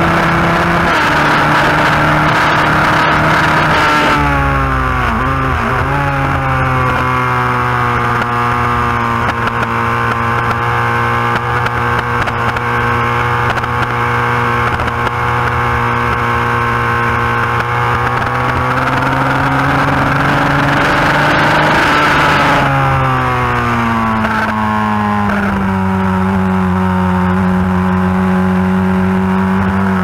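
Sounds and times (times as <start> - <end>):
race motorcycle engine at high revs: 0.0 - 30.0.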